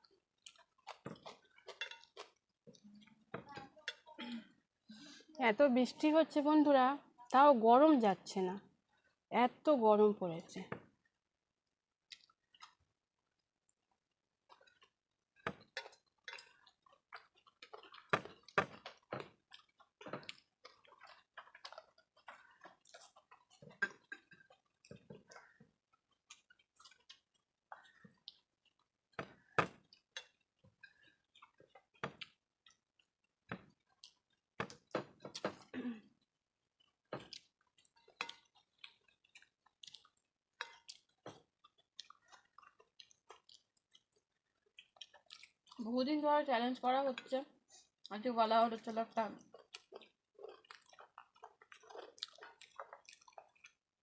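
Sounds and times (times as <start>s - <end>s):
people chewing: 0.0s - 5.4s, 11.6s - 54.0s
wet mouth clicks and smacks: 12.1s - 12.8s, 37.3s - 45.8s, 49.6s - 53.9s.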